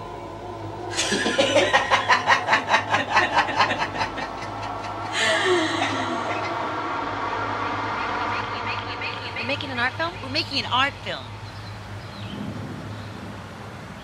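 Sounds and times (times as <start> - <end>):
person laughing: 0.9 - 6.7.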